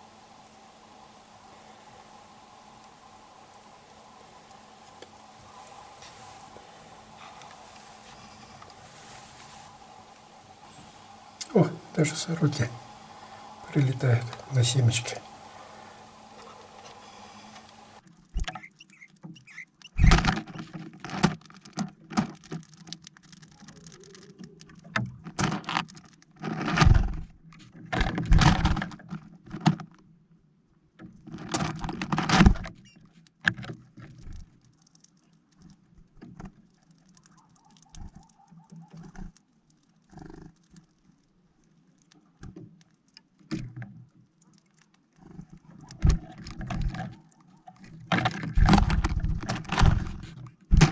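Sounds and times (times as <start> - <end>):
birds pecking at a plastic feeder: 0.0 - 18.0.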